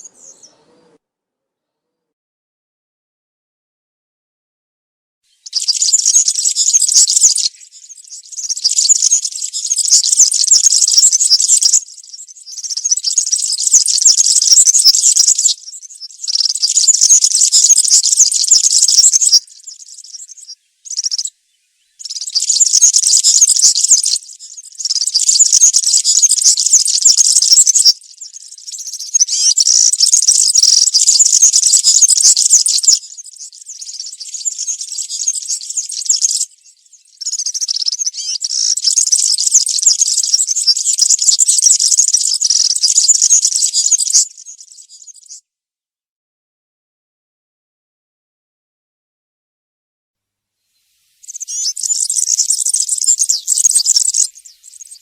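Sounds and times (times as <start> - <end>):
bird singing buzzy twitter: 0.0 - 1.0, 5.3 - 45.4, 50.8 - 55.0.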